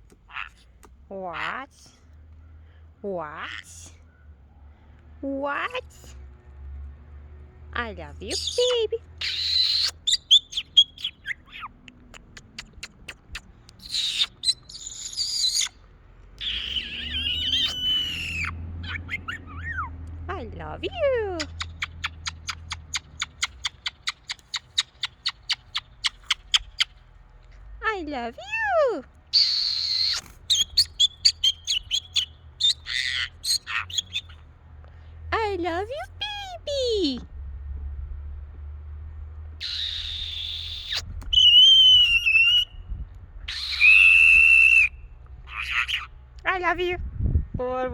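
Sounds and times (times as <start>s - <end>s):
parrot squawking: 0.3s - 0.6s, 8.3s - 11.8s, 13.8s - 15.8s, 16.4s - 19.9s, 28.4s - 34.4s, 39.6s - 42.7s, 43.5s - 46.2s
parrot warbling with whistles: 8.4s - 11.7s, 16.4s - 19.9s, 28.4s - 34.3s, 39.6s - 42.7s, 43.5s - 46.1s
parrot clicking and chirping: 9.2s - 15.8s, 21.4s - 27.0s, 29.4s - 34.4s.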